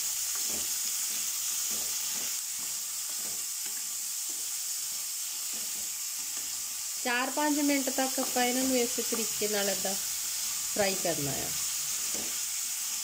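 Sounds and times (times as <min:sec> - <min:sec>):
vegetables sizzling in hot oil: 0:00.0 - 0:13.0
wooden spatula knocking pan: 0:12.0 - 0:12.4.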